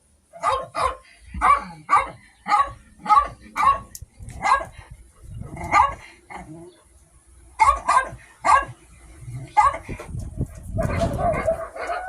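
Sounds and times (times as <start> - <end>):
dog barking: 0.4 - 4.8, 5.6 - 6.0, 7.6 - 8.8, 9.5 - 9.9, 10.7 - 12.0.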